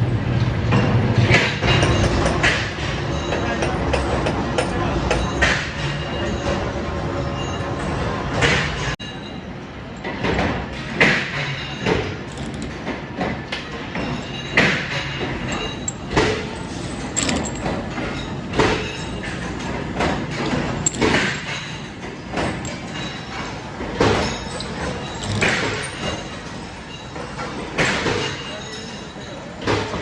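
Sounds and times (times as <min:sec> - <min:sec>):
factory machinery running: 0:00.0 - 0:30.0
sharp metal clanks and thuds: 0:10.0 - 0:26.4.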